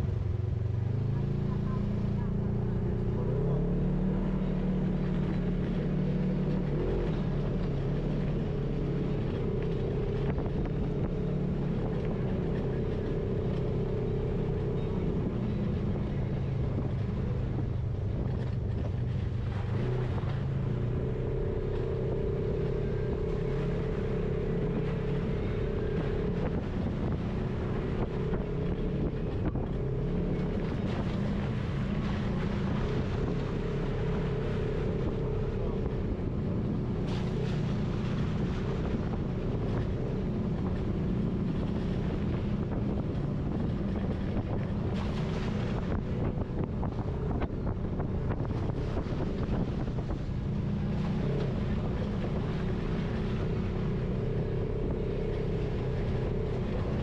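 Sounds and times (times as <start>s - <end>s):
utility vehicle engine running: 0.0s - 57.0s.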